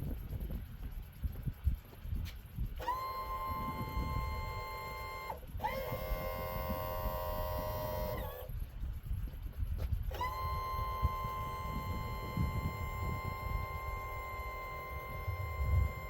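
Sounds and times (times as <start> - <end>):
wind rumble on microphone: 0.0 - 16.0
warning buzzer beeps: 3.0 - 8.4, 10.2 - 16.0.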